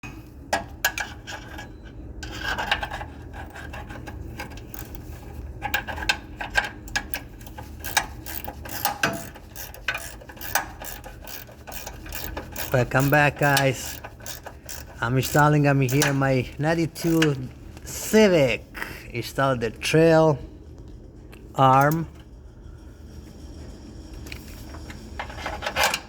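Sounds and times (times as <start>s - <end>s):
hand tools on metal parts: 0.0s - 18.6s, 21.4s - 22.3s.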